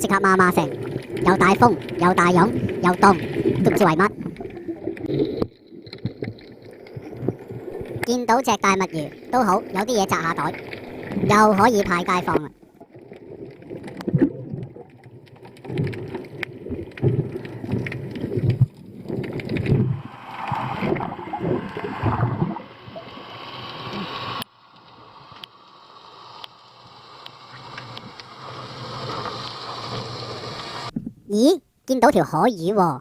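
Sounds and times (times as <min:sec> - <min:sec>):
water sloshing and gurgling: 0:00.0 - 0:24.4
rushing water: 0:00.0 - 0:30.9.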